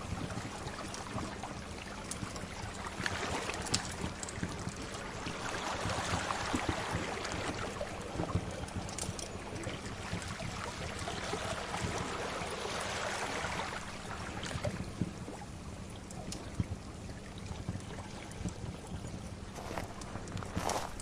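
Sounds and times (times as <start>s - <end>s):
sea waves washing in: 9.9s - 14.9s.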